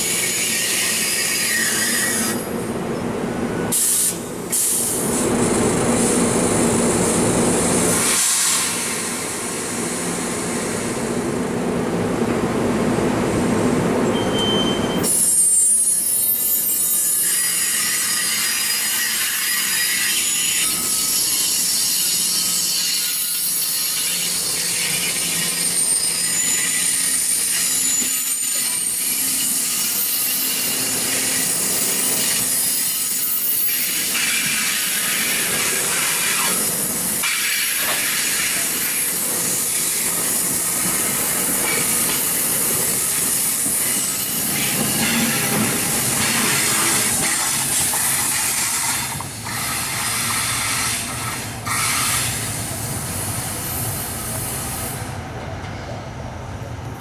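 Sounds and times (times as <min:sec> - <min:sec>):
train wheels hissing on rail: 0:00.0 - 0:02.6, 0:03.6 - 0:12.0, 0:15.0 - 0:56.6
train approaching: 0:00.0 - 0:57.0
wheel squeal: 0:14.1 - 0:52.4.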